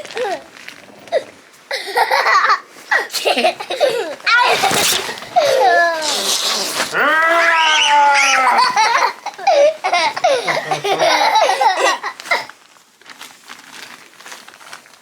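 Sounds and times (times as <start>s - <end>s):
young children laughing: 1.7s - 6.3s, 6.9s - 12.5s.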